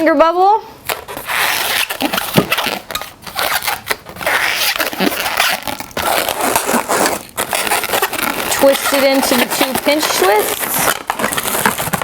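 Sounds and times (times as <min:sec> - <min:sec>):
balloon rubbing and squeaking: 0:00.8 - 0:12.0.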